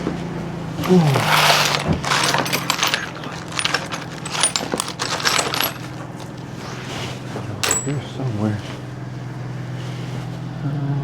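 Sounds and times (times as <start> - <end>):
metal tools clinking and rattling: 0.8 - 6.7, 7.4 - 8.2.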